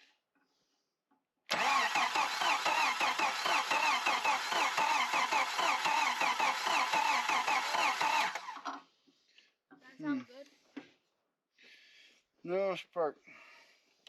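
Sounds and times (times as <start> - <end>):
engine cranking by starter: 1.5 - 8.8.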